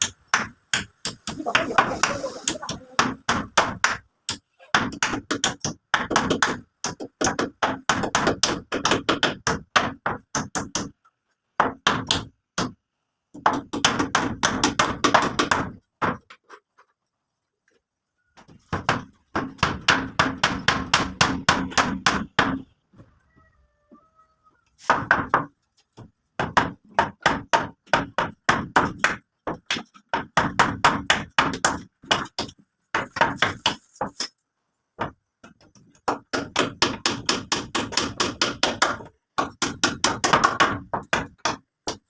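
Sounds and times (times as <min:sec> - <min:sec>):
rapid hammer strikes: 0:18.7 - 0:22.6, 0:36.1 - 0:42.0.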